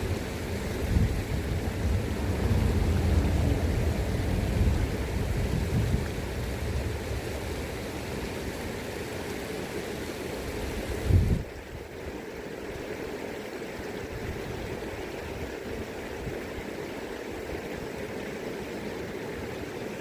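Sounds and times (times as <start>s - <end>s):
wind rumbling on microphone: 0.0s - 11.9s
river flowing: 0.0s - 20.0s.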